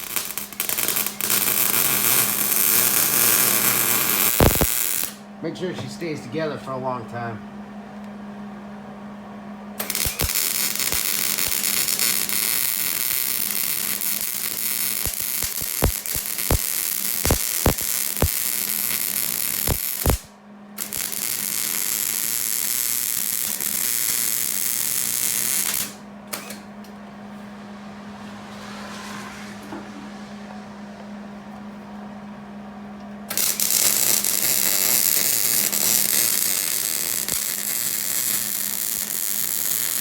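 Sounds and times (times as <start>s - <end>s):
sharp welding pops: 0.0s - 5.2s, 9.8s - 26.6s, 33.3s - 40.0s
welding arc crackling hiss: 0.0s - 5.2s, 9.8s - 26.6s, 33.3s - 40.0s
steady low hum: 0.0s - 40.0s.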